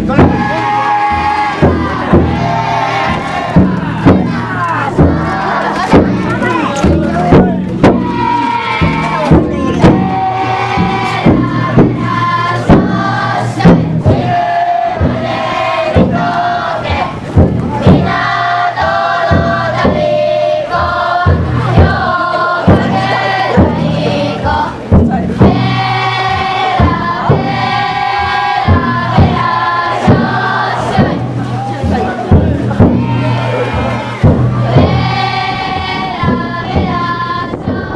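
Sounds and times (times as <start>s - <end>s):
group of voices chanting: 0.0s - 37.9s
taiko drum strikes: 0.0s - 37.9s.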